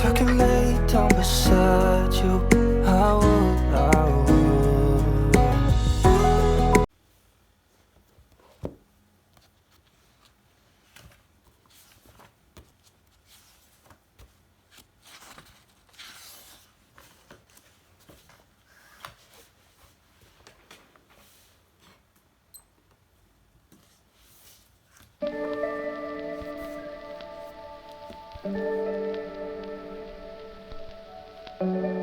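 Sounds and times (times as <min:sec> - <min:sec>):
background music: 0:00.0 - 0:06.9, 0:25.2 - 0:32.0.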